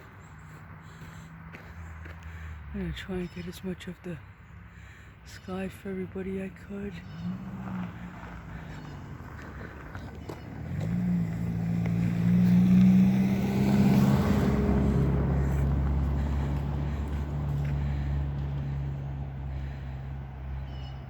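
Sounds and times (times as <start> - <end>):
vehicle driving past: 7.0 - 21.0.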